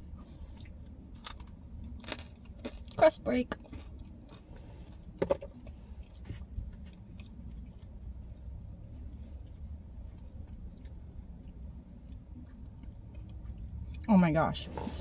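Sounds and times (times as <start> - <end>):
steady low hum: 0.0 - 15.0
pizza crust crunching: 0.5 - 8.0.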